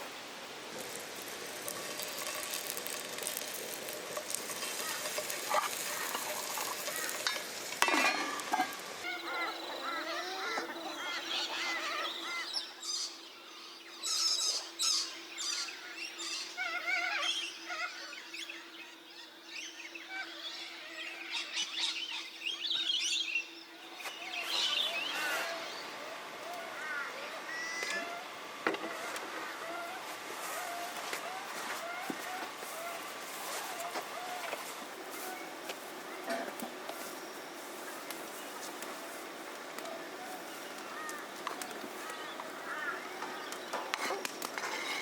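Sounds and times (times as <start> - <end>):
noisy rustle: 0.0 - 9.2, 23.9 - 45.0
birds chirping and trilling: 2.5 - 30.0, 39.8 - 45.0.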